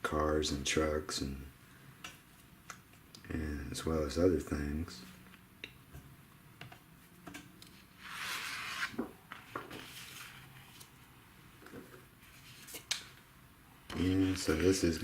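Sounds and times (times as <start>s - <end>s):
paper rustling: 8.0s - 11.0s, 11.7s - 13.1s.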